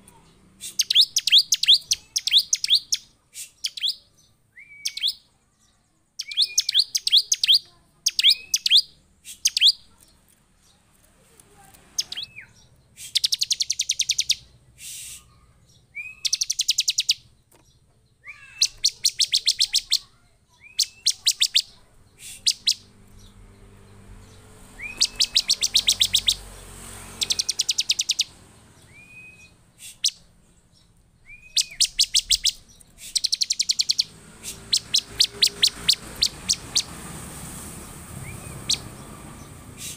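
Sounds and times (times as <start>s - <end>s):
bird sharp chirps: 0.1s - 10.7s, 11.9s - 37.1s, 37.7s - 39.9s
bird buzzy trills: 20.7s - 30.4s, 31.3s - 39.9s.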